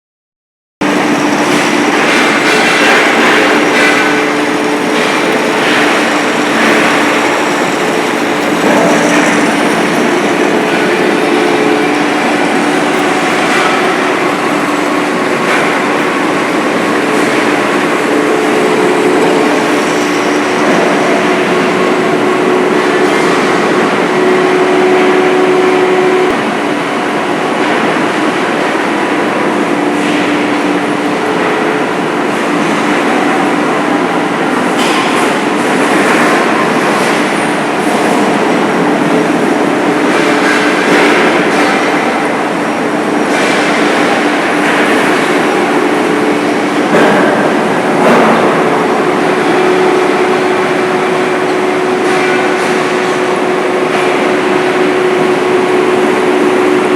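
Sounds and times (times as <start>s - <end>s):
metal lathe cutting metal: 0.8s - 26.6s.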